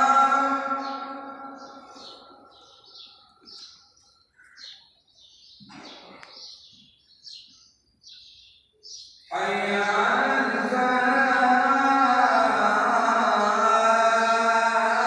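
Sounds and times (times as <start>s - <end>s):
small birds chirping: 0.1s - 9.8s.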